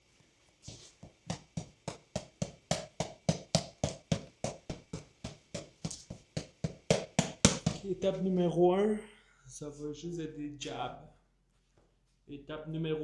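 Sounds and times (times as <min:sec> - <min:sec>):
punches striking punching bag: 0:01.3 - 0:07.8.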